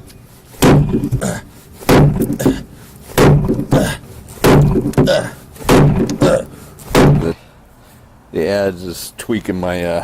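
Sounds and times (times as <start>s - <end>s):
adze chopping wood: 0.6s - 7.4s.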